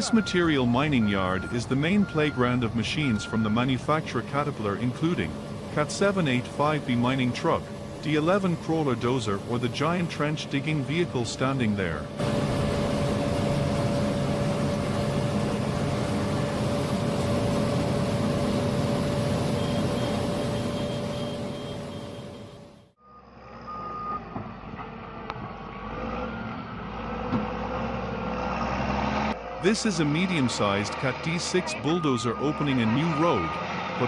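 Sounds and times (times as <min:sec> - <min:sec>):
back-up alarm beeping: 0:00.0 - 0:12.5, 0:18.4 - 0:24.3, 0:31.4 - 0:33.6
heavy machinery engine with whine: 0:00.0 - 0:34.0.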